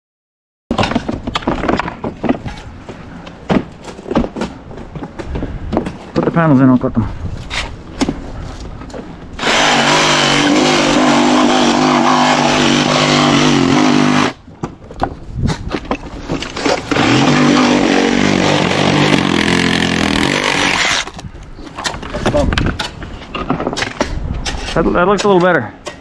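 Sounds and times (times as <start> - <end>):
power saw cutting panels: 9.4 - 14.4, 16.8 - 21.2.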